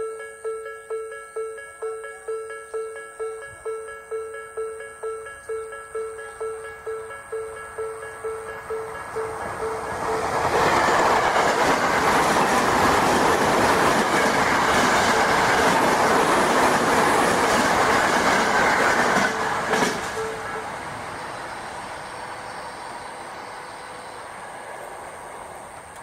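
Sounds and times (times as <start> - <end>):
crossing warning bell: 0.0 - 21.3
train wheels rushing on rails: 8.0 - 26.0.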